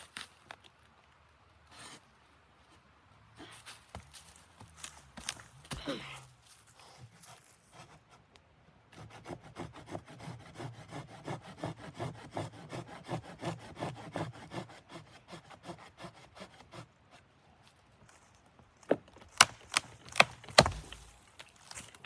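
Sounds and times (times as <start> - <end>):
hand saw cutting wood: 8.9 - 17.2.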